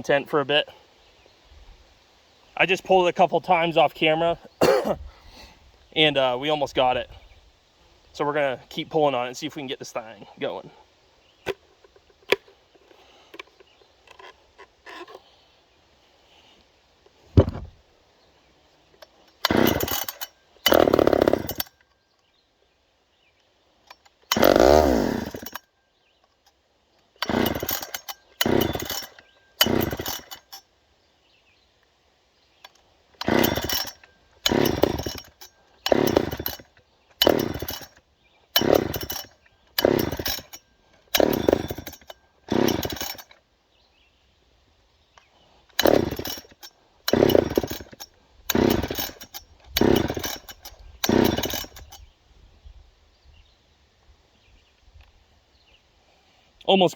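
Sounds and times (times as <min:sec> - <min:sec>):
chainsaw pull-start attempts: 0:11.4 - 0:15.4, 0:18.9 - 0:21.9, 0:23.8 - 0:30.7, 0:32.6 - 0:43.5, 0:45.2 - 0:52.1.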